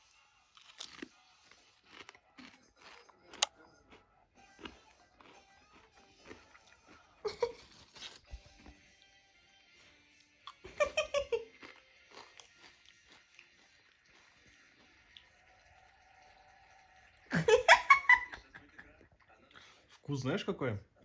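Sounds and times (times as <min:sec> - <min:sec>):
potato chips being chewed: 0:00.0 - 0:16.5
faint background music: 0:00.0 - 0:21.0.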